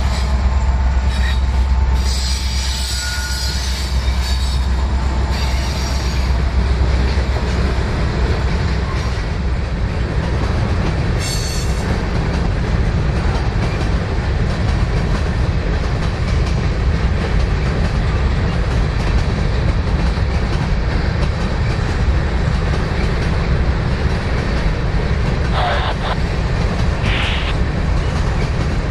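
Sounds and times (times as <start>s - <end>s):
train wheels clicking over rail joints: 0.0s - 25.4s
high-pitched screech: 25.6s - 26.2s, 27.0s - 27.6s.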